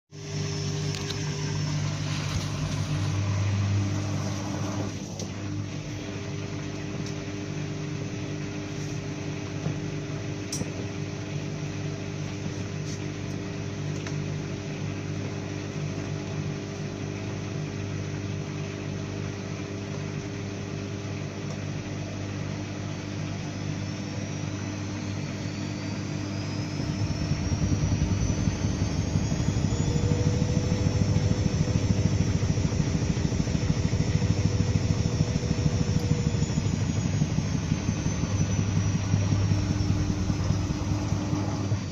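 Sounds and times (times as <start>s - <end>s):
rising whine: 0.1s - 5.9s, 23.4s - 41.9s.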